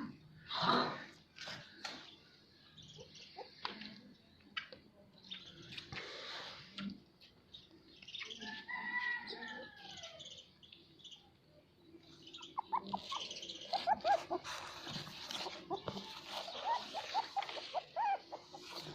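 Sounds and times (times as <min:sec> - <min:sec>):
puppy squeaks: 0:12.4 - 0:18.9
puppy whining: 0:12.5 - 0:18.9.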